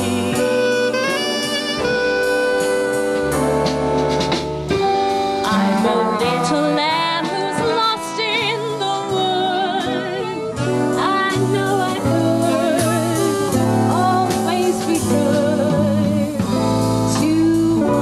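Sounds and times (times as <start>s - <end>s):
woman singing with vibrato: 0.0s - 1.3s, 5.4s - 18.0s
swing band music: 0.0s - 18.0s.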